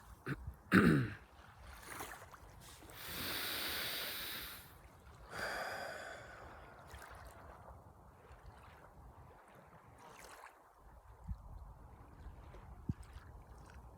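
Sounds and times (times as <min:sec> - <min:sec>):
person breathing deeply: 0:02.9 - 0:04.7, 0:05.3 - 0:07.0
person sighing: 0:03.0 - 0:04.6, 0:05.3 - 0:06.8.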